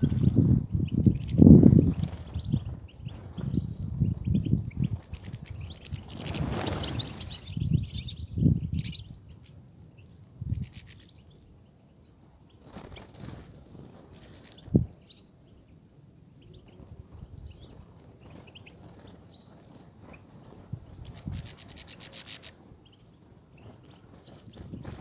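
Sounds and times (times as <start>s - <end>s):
birds twittering: 0.0s - 9.5s
wings rustling and fluttering: 0.0s - 25.0s.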